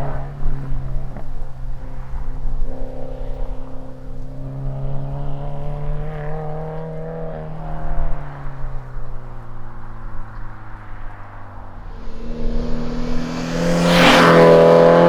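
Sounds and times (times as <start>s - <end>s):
car exhaust drone: 7.6s - 15.0s.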